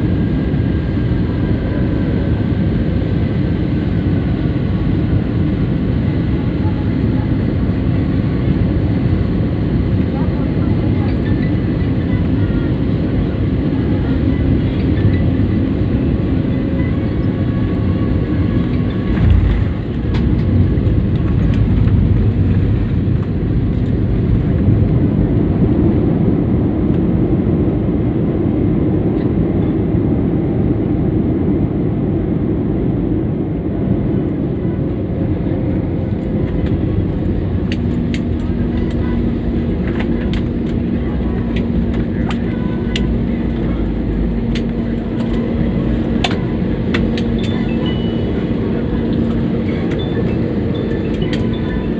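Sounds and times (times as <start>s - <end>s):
jet engines roaring in cabin: 0.0s - 51.9s.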